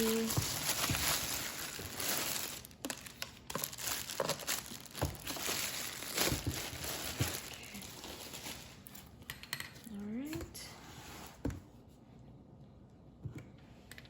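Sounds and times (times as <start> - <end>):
packaging crinkling and rustling: 0.0 - 9.2.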